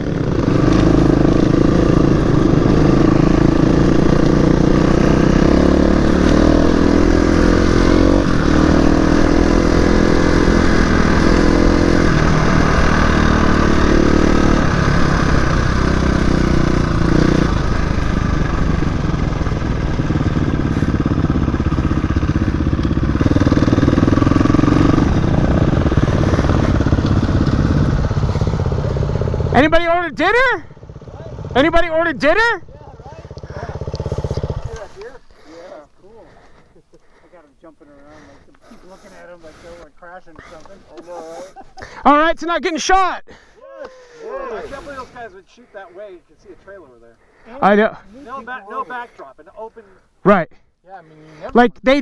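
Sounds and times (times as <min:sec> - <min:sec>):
dirt bike engine running: 0:00.0 - 0:41.2.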